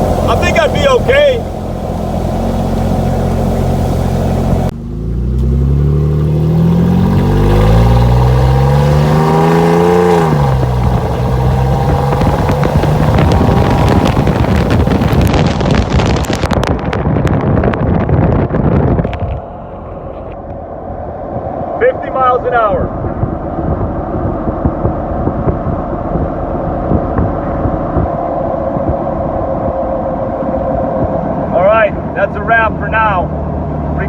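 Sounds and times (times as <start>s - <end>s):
car engine revving: 0.0s - 16.7s, 19.1s - 34.0s
wind and road noise: 0.0s - 34.0s.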